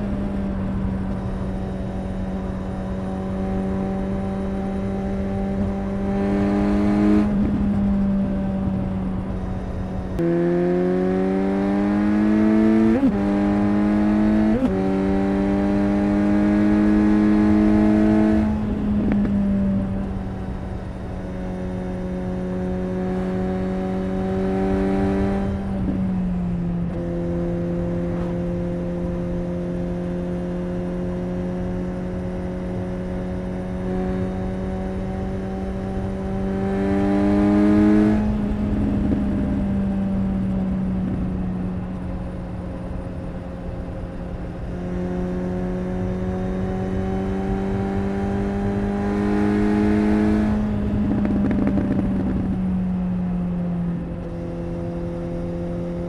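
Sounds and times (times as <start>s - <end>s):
gear changes: 0.0s - 39.8s
motorcycle engine revving: 0.0s - 56.0s.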